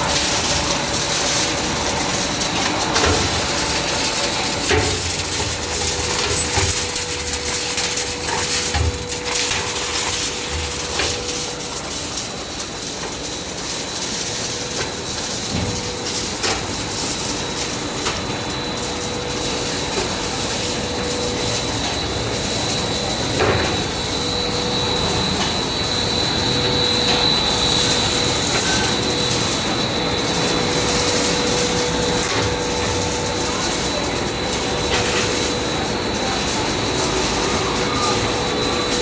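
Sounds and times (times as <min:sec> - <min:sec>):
industrial machinery humming: 0:00.0 - 0:39.0.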